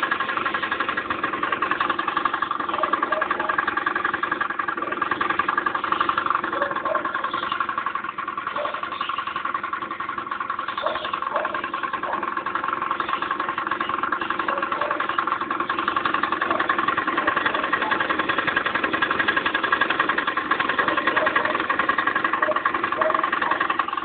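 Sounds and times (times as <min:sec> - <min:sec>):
scooter engine running: 0:00.0 - 0:24.0.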